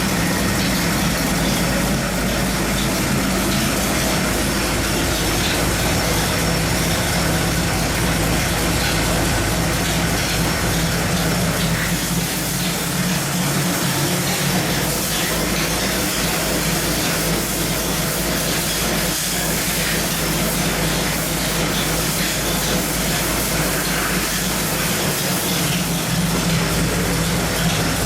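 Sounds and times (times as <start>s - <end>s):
engine roaring on a dynamometer: 0.0s - 28.0s.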